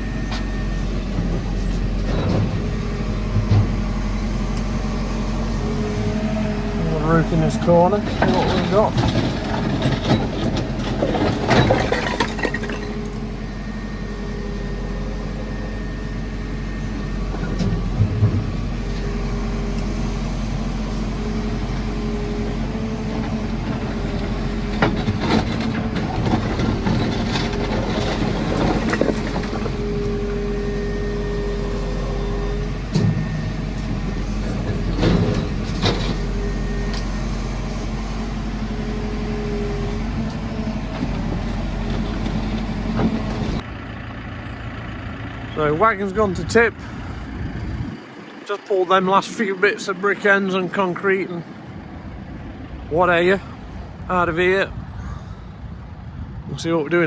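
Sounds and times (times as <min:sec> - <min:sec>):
hydraulic whine: 0:00.0 - 0:43.8
diesel engine running: 0:00.0 - 0:57.0
bucket scraping rubble: 0:06.8 - 0:13.1, 0:23.1 - 0:29.9.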